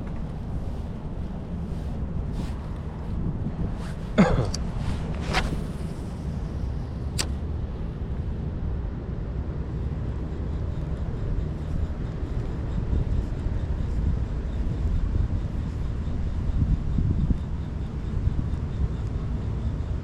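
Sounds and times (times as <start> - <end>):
wind buffeting microphone: 0.0 - 20.0
sharp click: 7.1 - 7.4.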